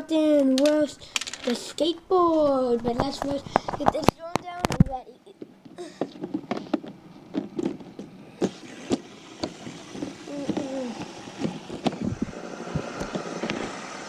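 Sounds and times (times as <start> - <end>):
plastic toy clicks and knocks: 0.6 - 1.6.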